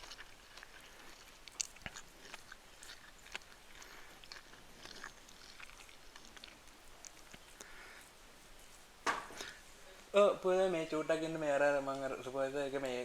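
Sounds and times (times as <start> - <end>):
small crunches and clicks: 0.0 - 8.2
person chewing food: 0.0 - 10.6.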